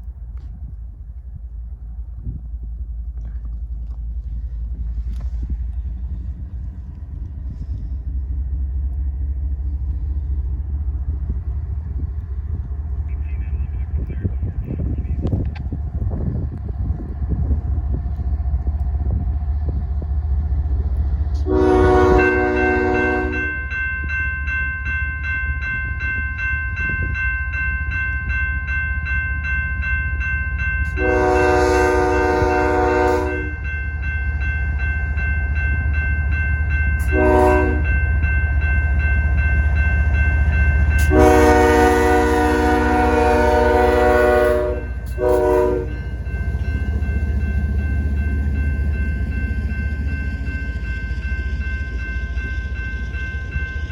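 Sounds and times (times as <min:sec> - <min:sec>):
engine and rail rumble: 0:00.0 - 0:53.9
train air horn blasts: 0:21.4 - 0:23.6, 0:31.0 - 0:33.6, 0:37.0 - 0:37.9, 0:41.0 - 0:46.1.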